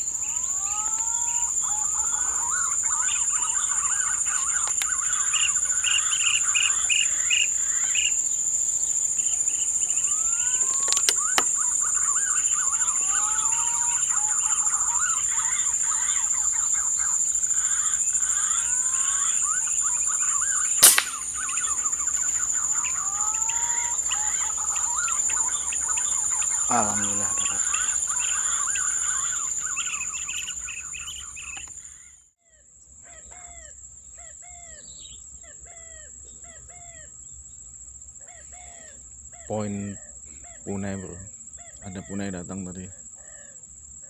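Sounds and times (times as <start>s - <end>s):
birds chirping and whistling: 0.0s - 32.0s
high insect drone: 0.0s - 32.1s, 34.0s - 44.0s
air rifle shot: 20.7s - 22.3s.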